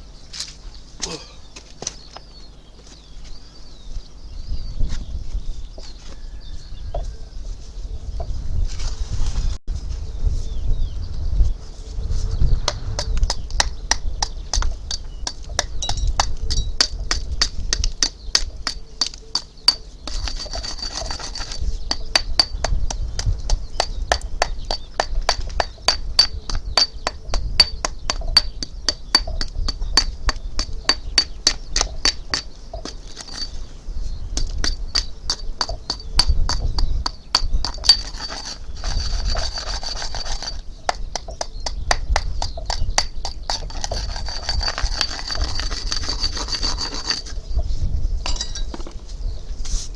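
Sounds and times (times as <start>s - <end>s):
hand tool scraping hard surface: 12.7s - 33.8s, 34.4s - 47.4s.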